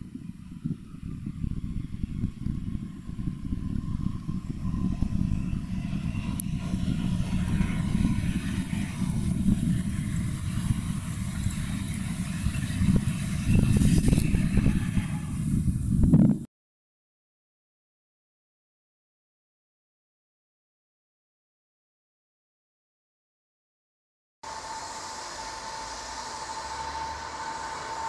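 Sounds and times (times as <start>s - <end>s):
wheels knocking on track: 0.0s - 15.7s
train wheels rumbling on rails: 0.0s - 16.5s, 24.4s - 28.0s.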